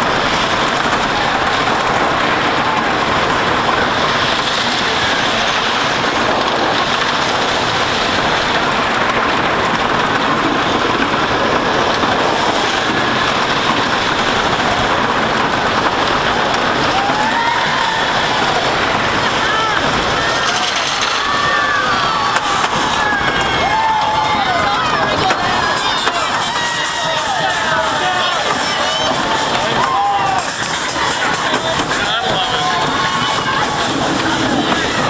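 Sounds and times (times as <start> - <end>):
roller coaster wheels clattering: 0.0 - 35.0.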